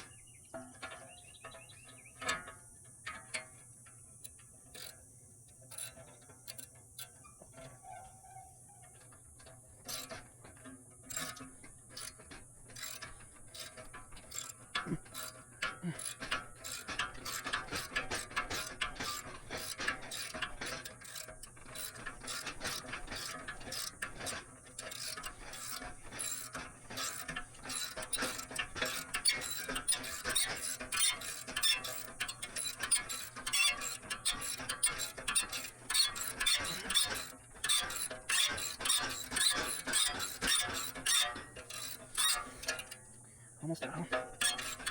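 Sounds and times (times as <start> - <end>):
ratchet wrench clicking: 4.2 - 5.0, 5.7 - 7.2, 11.0 - 43.1, 44.2 - 44.9.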